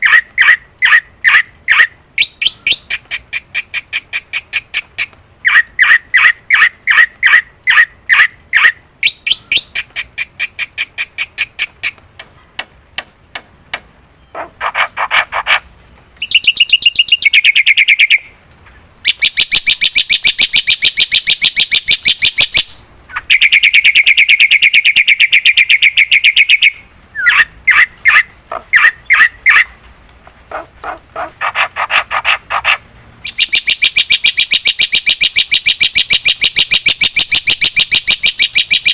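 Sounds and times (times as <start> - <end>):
bird singing with rattling trills: 16.2 - 18.3, 19.1 - 29.7, 31.4 - 38.9.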